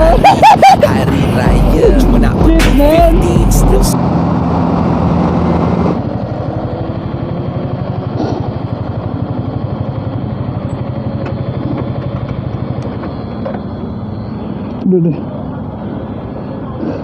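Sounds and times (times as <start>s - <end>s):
motorcycle engine idling: 6.0s - 16.8s.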